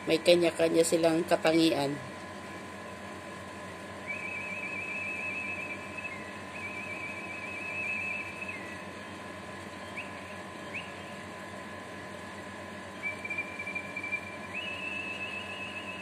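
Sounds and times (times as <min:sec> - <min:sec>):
bird rising chirps: 0:03.7 - 0:11.3, 0:12.8 - 0:16.0
bird warbling whistles: 0:04.0 - 0:09.2, 0:09.8 - 0:11.2, 0:12.9 - 0:16.0.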